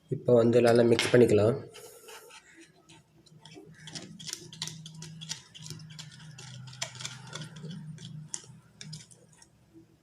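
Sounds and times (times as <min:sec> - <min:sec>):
spoon stirring in plastic container: 0:01.8 - 0:09.7.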